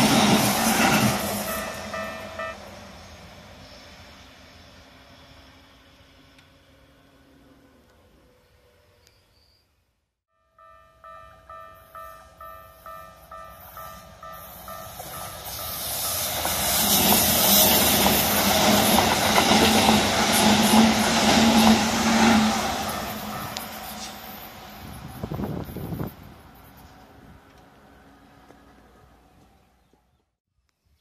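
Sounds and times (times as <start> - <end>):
electric train passing: 0.0 - 9.1, 10.4 - 29.8
level-crossing alarm bell ringing: 1.4 - 2.8, 10.3 - 16.4, 22.8 - 24.4.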